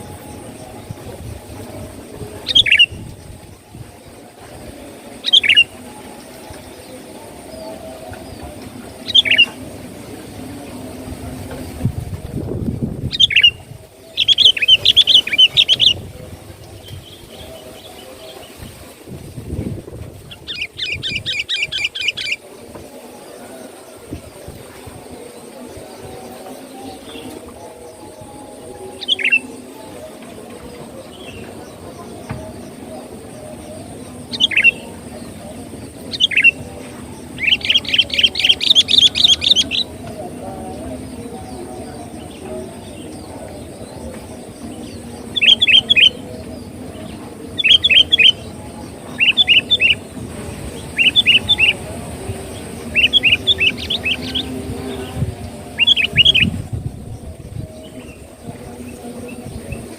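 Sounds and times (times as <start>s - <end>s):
bulbul chattering calls: 0.0s - 11.8s, 13.0s - 18.7s, 24.6s - 59.9s
bird chattering notes: 49.1s - 56.6s.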